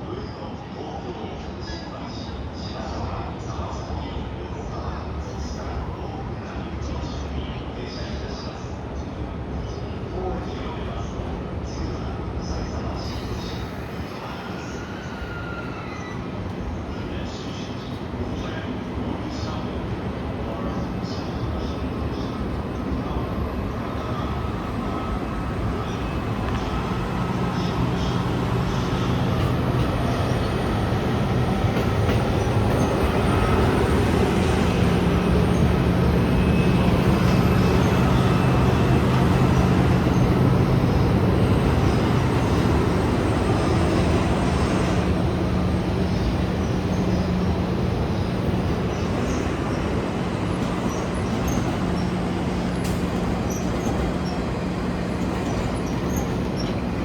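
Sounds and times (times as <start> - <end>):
electric train hum: 12.4 - 57.0
train wheels rumbling: 13.0 - 57.0.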